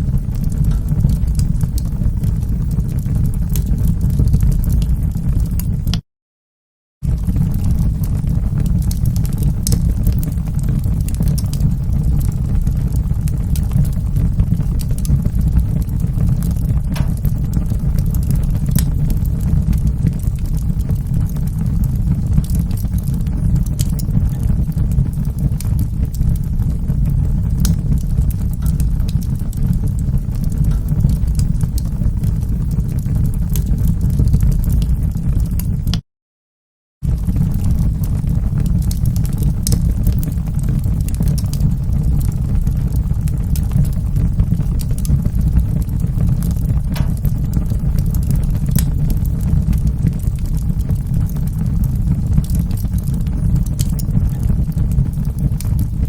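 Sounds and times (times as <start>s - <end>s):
wood fire crackling and popping: 0.0s - 6.0s, 7.0s - 36.0s, 37.0s - 56.0s.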